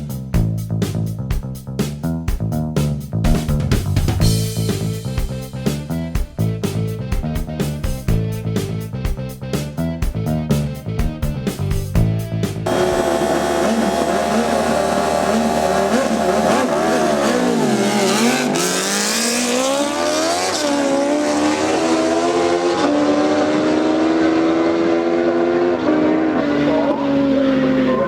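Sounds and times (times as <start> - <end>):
racing engine at high revs: 12.6 - 28.0.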